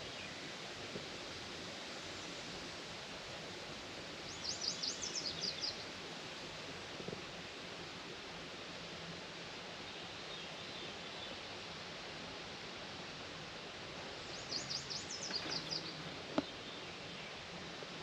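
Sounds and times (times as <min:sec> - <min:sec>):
rural background noise: 0:00.0 - 0:18.0
songbird singing: 0:04.3 - 0:05.8, 0:14.1 - 0:17.4.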